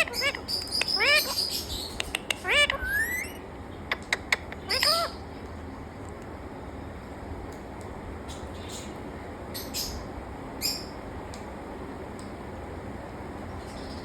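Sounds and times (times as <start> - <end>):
parrot squawking: 0.0 - 5.2
sharp clicks: 0.5 - 1.0, 1.9 - 3.4.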